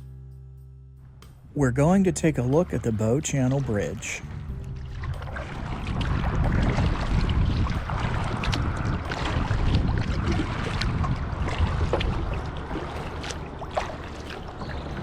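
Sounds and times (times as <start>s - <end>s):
paddle splashes and drips: 1.8s - 15.0s
wind buffeting microphone: 4.2s - 15.0s.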